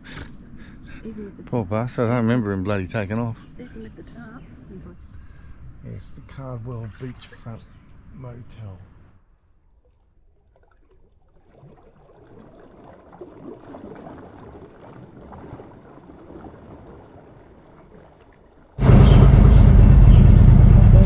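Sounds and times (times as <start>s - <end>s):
motorcycle engine rumble: 18.8s - 21.0s.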